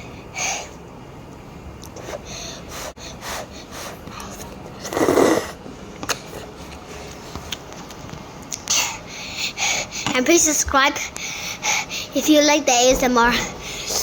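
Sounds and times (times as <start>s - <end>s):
boy breathing hard and sniffing: 2.0s - 5.6s, 8.7s - 10.2s, 11.0s - 12.2s.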